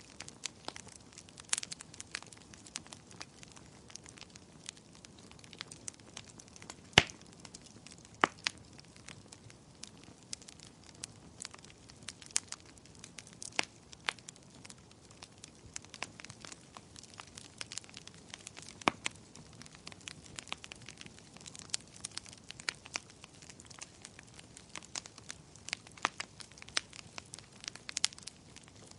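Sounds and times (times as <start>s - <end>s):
burning wood popping: 0.0s - 28.9s
wood fire crackling: 0.0s - 28.9s.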